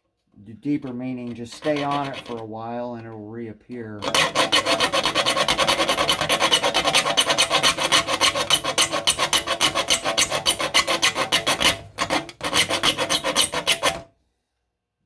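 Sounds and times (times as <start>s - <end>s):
metal file rasping on saw teeth: 0.8s - 2.6s, 4.0s - 14.1s.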